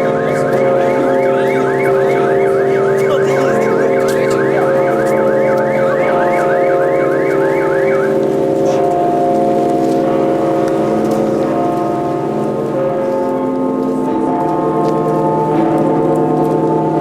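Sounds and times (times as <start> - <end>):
warbling electronic alarm: 0.0 - 9.4.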